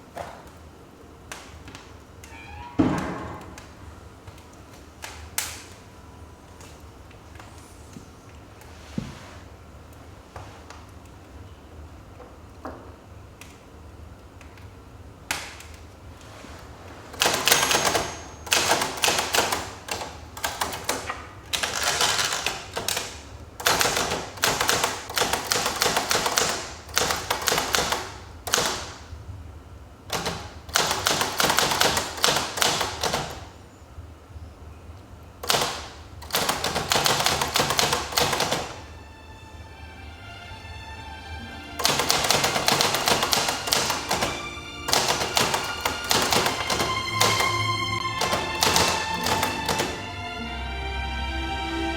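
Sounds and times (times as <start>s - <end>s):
manual typewriter keystrokes: 17.1s - 29.1s, 30.1s - 33.5s, 35.4s - 38.9s, 41.8s - 50.0s.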